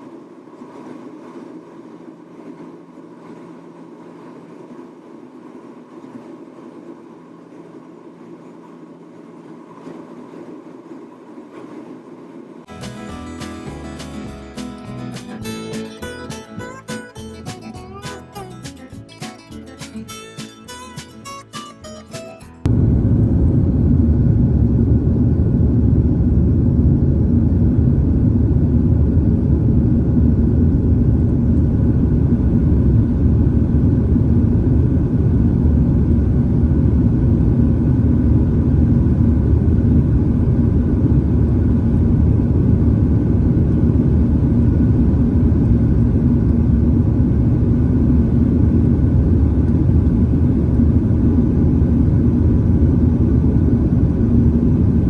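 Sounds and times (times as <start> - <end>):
faint constant hum: 0.0 - 55.0
engines and airflow rumble: 20.0 - 55.0.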